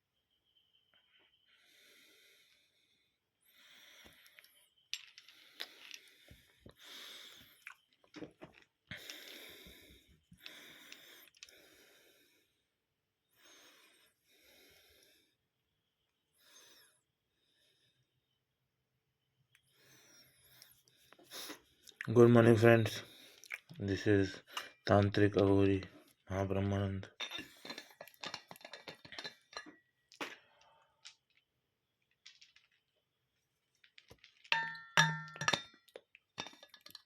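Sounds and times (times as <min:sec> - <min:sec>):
person breathing: 0:01.5 - 0:04.5, 0:08.9 - 0:12.7, 0:13.3 - 0:15.4.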